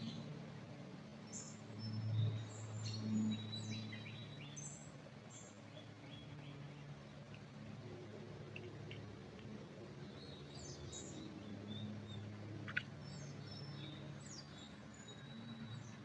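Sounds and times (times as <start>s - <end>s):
low steady background hum: 0.0s - 16.0s
small birds chirping: 9.9s - 16.0s.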